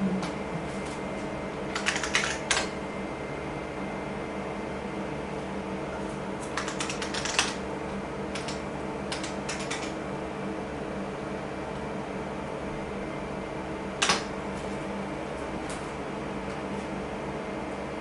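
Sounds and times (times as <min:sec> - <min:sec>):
computer fans humming: 0:00.0 - 0:18.0
clicky keyboard typing: 0:01.7 - 0:02.7, 0:06.5 - 0:07.6, 0:08.3 - 0:10.0.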